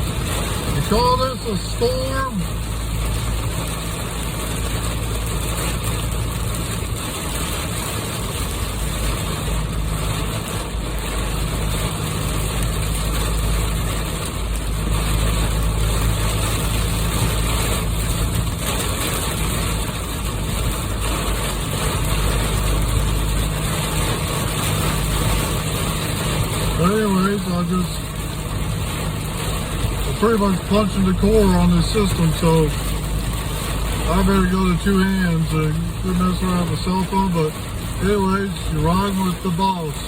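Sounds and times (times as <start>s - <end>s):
engine and tyres droning: 0.0s - 40.0s
heavy rain on a vehicle: 0.0s - 40.0s.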